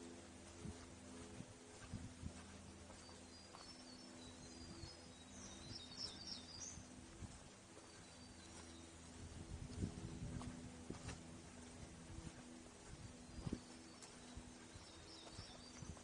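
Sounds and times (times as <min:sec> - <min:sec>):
birds twittering and chirping: 0:00.0 - 0:16.0
soft footsteps on a trail: 0:00.0 - 0:16.0
steady low hum: 0:00.0 - 0:16.0.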